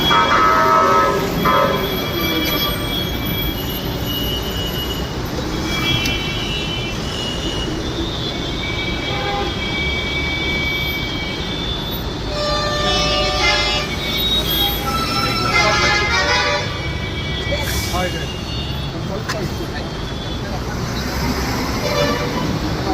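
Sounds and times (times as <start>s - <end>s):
bus horn toots: 0.0s - 2.8s, 8.8s - 10.1s, 11.4s - 18.8s, 21.7s - 22.9s
bus engine and road rumble: 0.0s - 22.9s.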